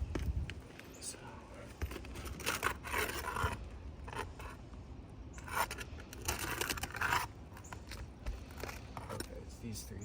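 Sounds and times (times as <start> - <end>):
scraping on asphalt shingles: 1.7 - 4.6, 5.4 - 9.4.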